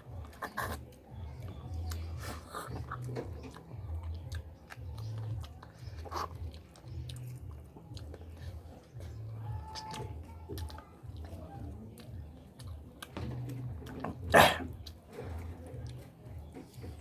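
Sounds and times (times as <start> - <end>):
person chewing meat: 0.0 - 17.0
wet mouth clicks: 1.8 - 8.6, 9.7 - 15.0
loud noisy mouth sound: 14.2 - 14.8.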